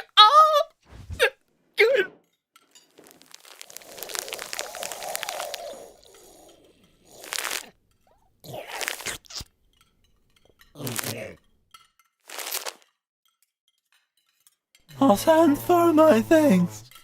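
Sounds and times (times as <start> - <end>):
crunching scraping noises: 2.7 - 7.7, 12.3 - 12.9.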